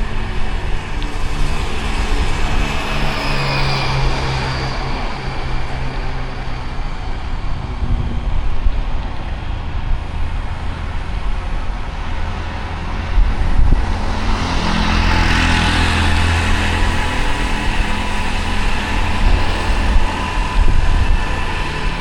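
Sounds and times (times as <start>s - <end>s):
approaching vehicle engine hum: 0.0s - 22.0s
vehicle engines and road noise: 0.0s - 22.0s.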